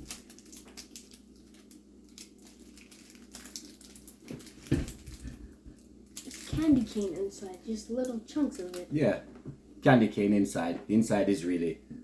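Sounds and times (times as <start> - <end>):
wrapper crinkling: 0.0 - 9.0.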